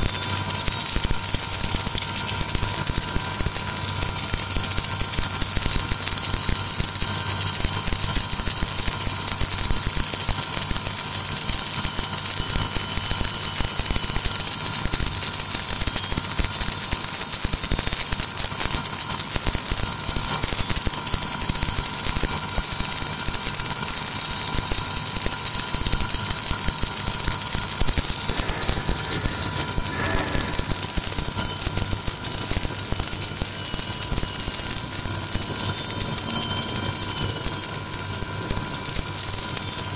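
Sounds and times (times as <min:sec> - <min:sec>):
welding hiss: 0:00.0 - 0:39.9
electrical hum and tone: 0:26.1 - 0:31.7.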